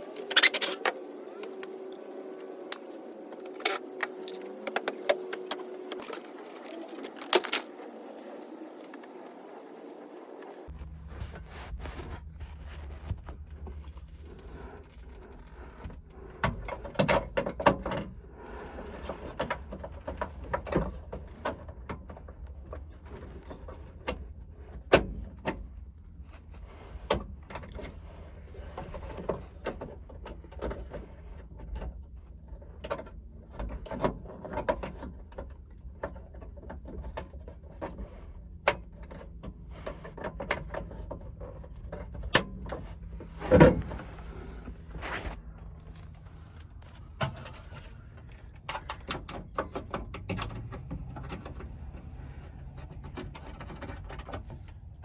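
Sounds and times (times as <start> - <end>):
hand tools clicking and clanking: 0.0 - 7.8
steady low hum: 0.0 - 34.4, 35.2 - 55.0.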